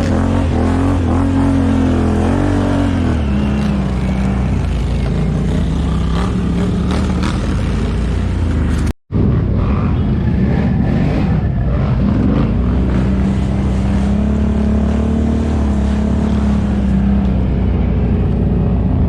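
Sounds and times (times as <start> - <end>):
atv engine running: 0.0 - 8.9.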